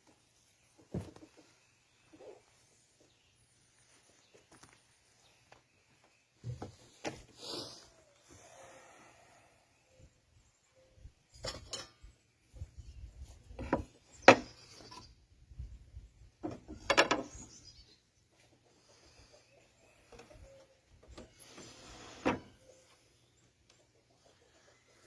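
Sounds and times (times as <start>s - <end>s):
wood rubbing scrapes: 21.3s - 22.6s.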